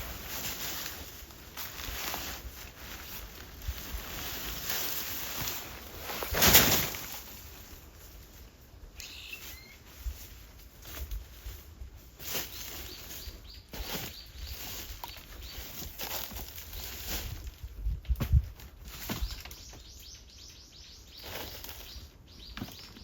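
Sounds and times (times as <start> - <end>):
faint bird chirps: 8.9 - 10.1, 19.0 - 23.0.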